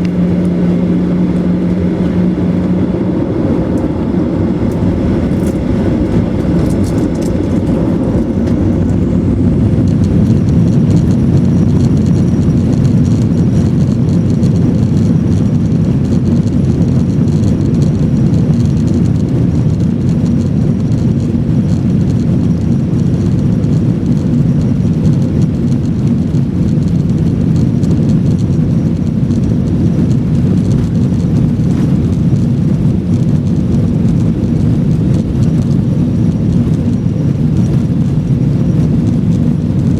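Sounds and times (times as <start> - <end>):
jet engine rumble in cabin: 0.0 - 39.9
light rattle: 4.7 - 9.0.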